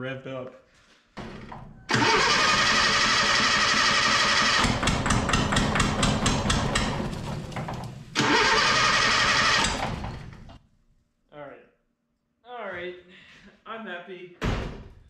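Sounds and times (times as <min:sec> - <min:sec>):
starter motor whining: 0:01.9 - 0:05.2, 0:05.8 - 0:10.5
engine firing raggedly: 0:01.9 - 0:10.6.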